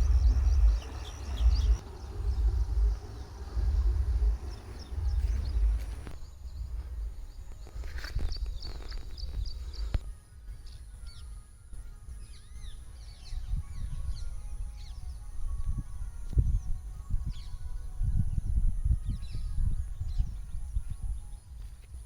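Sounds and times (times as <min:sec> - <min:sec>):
low uneven rumble: 0:00.0 - 0:10.1
birds chirping: 0:00.0 - 0:15.4.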